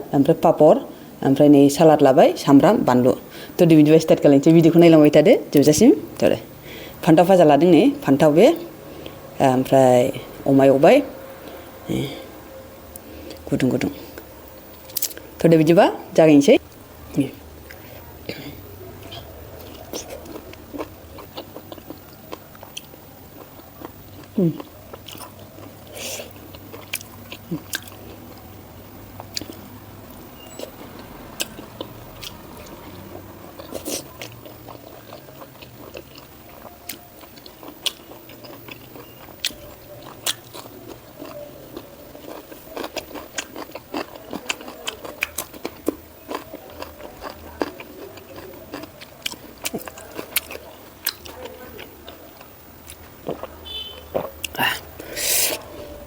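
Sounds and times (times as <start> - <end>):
person chewing food: 8.6 - 9.3, 11.3 - 15.4, 16.6 - 56.0.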